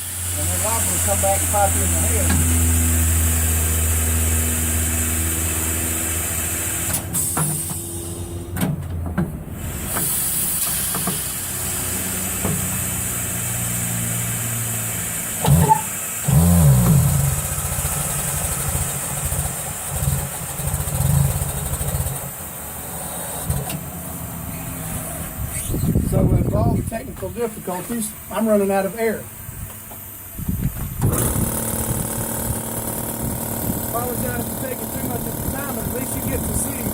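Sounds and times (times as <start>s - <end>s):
wavering machine noise burst: 0.0s - 6.9s, 31.1s - 36.9s
air compressor motor hum: 0.0s - 8.6s, 9.4s - 36.9s.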